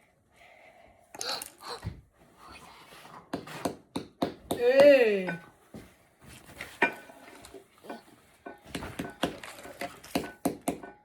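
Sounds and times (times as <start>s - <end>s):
hard objects tapping and clinking: 7.8s - 11.0s.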